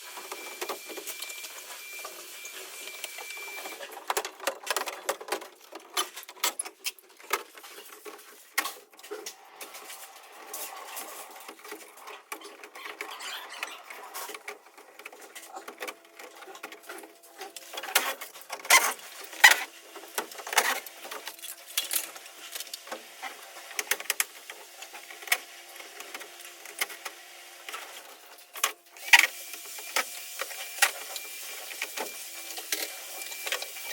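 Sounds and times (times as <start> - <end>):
clicks knocks and rattles of tools: 3.9 - 9.4.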